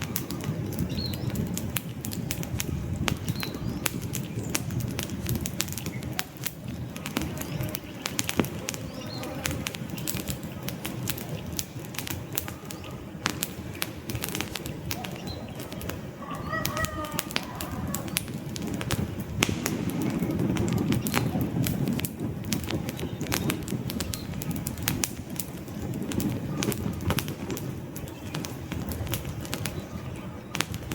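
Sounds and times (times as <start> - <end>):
campfire crackling and popping: 0.0 - 30.9
flames rushing: 0.0 - 30.9
bird call: 14.2 - 18.4.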